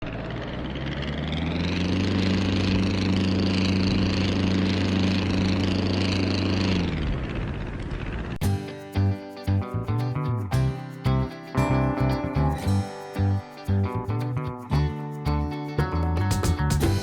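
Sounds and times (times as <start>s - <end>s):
engine running: 0.0s - 17.0s
acoustic guitar music: 8.4s - 17.0s.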